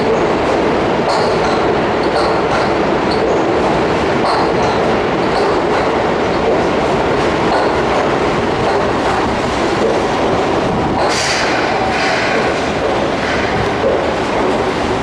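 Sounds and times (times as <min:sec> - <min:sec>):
electric train rumbling: 0:00.0 - 0:15.0
wheels clacking over rails: 0:00.0 - 0:15.0
brief high hiss: 0:11.1 - 0:13.6.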